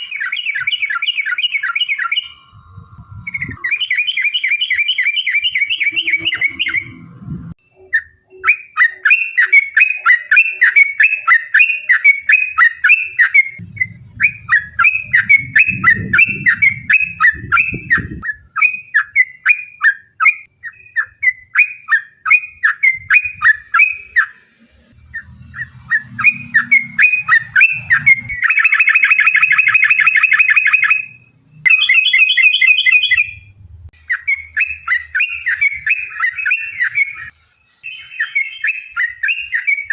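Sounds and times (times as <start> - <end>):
bird singing chattering notes: 0.0 - 24.4, 25.0 - 39.9
low rumble: 6.2 - 7.6, 13.6 - 18.2.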